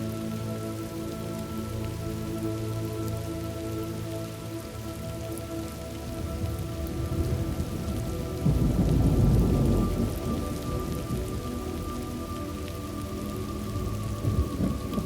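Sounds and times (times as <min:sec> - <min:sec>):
soft sustained music tones: 0:00.0 - 0:15.0
steady rain: 0:00.0 - 0:15.0
deep thunder roll: 0:06.4 - 0:11.4.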